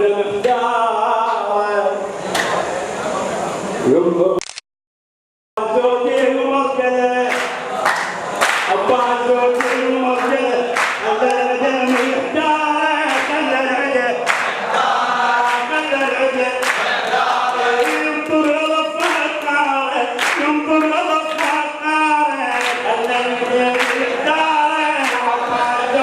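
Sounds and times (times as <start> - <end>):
men chanting in unison: 5.6 - 26.0.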